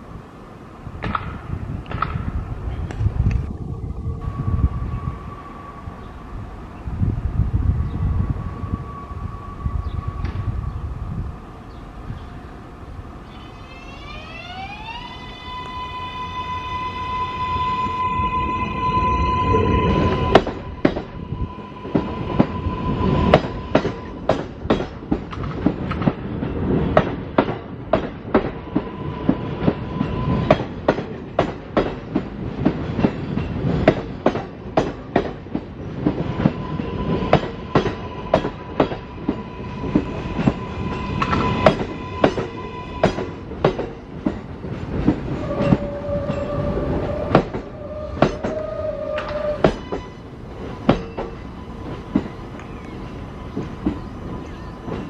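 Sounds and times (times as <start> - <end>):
steady train rumble: 0.0 - 55.0
train wheels clacking over rail joints: 1.0 - 2.4, 23.3 - 28.9, 29.6 - 48.6, 49.2 - 52.9
lower tone: 2.7 - 12.4, 13.2 - 24.3.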